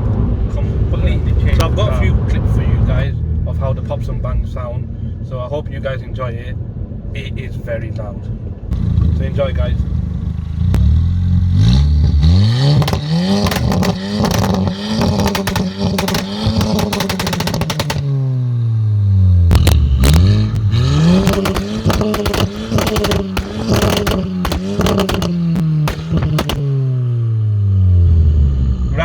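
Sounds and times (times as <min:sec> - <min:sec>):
exhaust pops and crackles: 0:00.1 - 0:02.6, 0:08.7 - 0:18.8, 0:19.4 - 0:27.2
car engine revving: 0:08.3 - 0:29.0.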